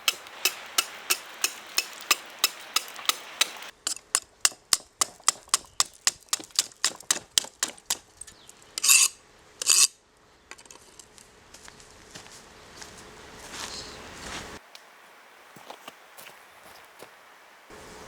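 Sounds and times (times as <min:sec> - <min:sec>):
hammer tapping on ice: 0:00.0 - 0:08.4
sharp scraping bursts: 0:00.0 - 0:10.0.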